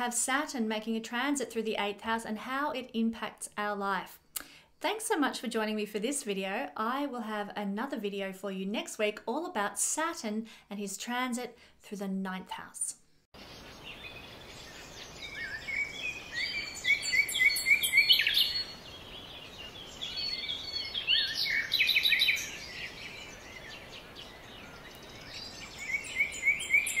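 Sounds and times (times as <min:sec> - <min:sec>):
songbirds singing and chirping: 0:13.4 - 0:27.0.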